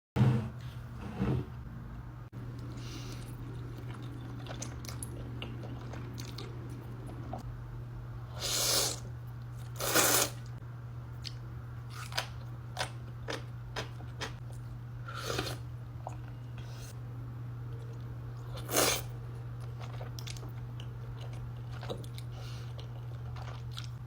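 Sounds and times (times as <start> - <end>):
slurping noodles: 8.4 - 9.0, 9.7 - 10.5, 15.1 - 15.6, 18.6 - 19.1.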